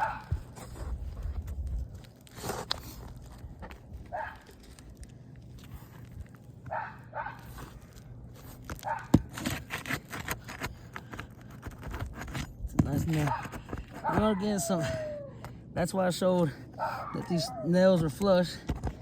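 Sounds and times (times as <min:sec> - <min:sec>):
tools scraping on shingles: 0:00.0 - 0:15.1.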